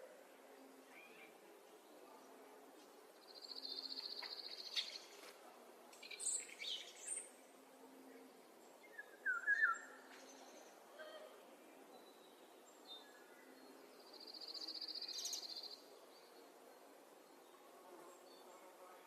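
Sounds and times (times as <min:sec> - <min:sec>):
songbirds singing: 0:05.9 - 0:07.4, 0:08.5 - 0:10.8, 0:11.6 - 0:18.8.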